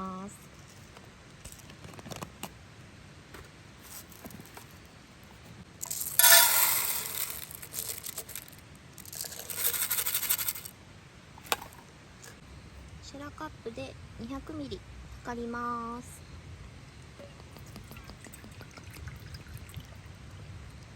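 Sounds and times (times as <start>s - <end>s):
rice pot scraping and rattling: 5.8s - 10.7s.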